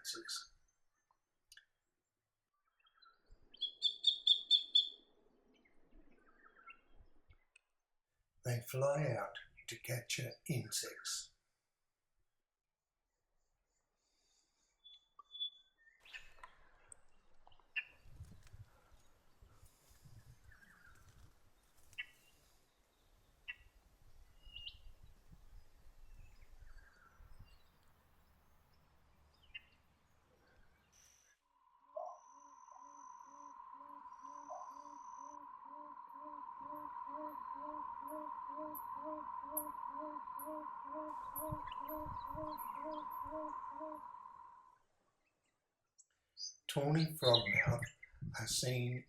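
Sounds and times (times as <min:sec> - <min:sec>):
faint bird calls: 0:03.6 - 0:05.0, 0:32.0 - 0:44.8
low oom bird call: 0:32.0 - 0:44.8
steady high drone: 0:32.4 - 0:44.7.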